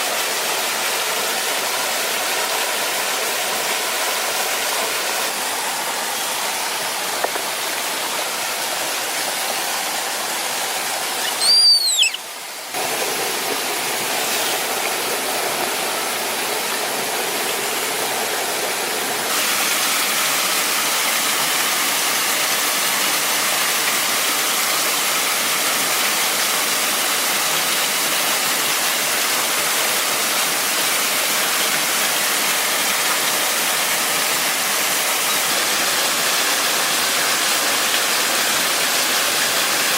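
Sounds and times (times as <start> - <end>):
waterfall rushing: 3.8 - 20.7
short falling whistle: 11.2 - 12.3.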